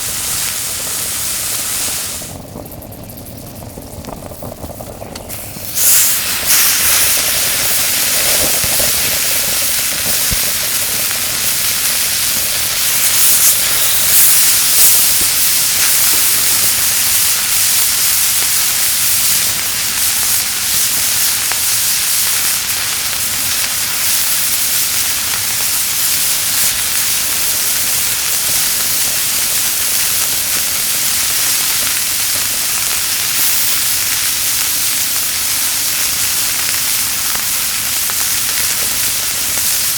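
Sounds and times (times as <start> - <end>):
meat sizzling on hot plate: 0.0 - 39.9.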